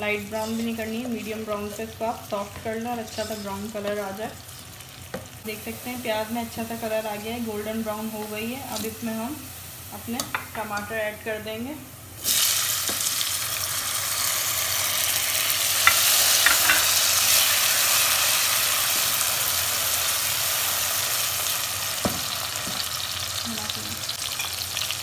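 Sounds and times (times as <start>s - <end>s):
tomatoes sizzling in hot oil: 0.0s - 25.0s
spatula scraping a pan: 0.4s - 1.8s, 2.6s - 4.0s.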